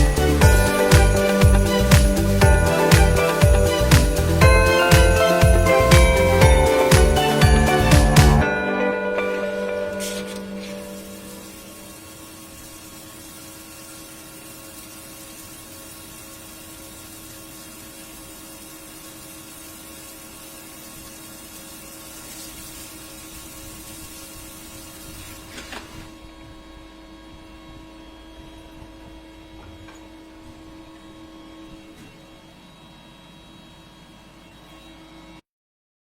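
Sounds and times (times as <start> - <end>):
machine hum with fixed tones: 0.0 - 35.4
machine hiss: 9.2 - 25.6.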